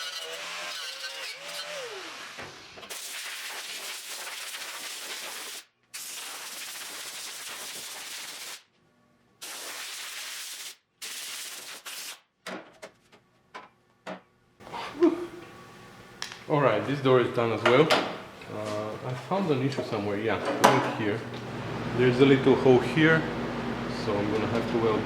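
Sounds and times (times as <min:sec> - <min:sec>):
compressed air hissing blasts: 0:09.4 - 0:12.2.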